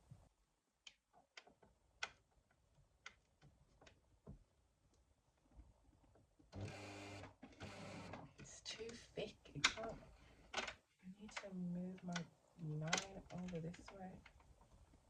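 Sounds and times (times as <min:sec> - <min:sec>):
sewing machine running: 0:06.6 - 0:08.2
faint handling clicks and taps: 0:07.4 - 0:15.0.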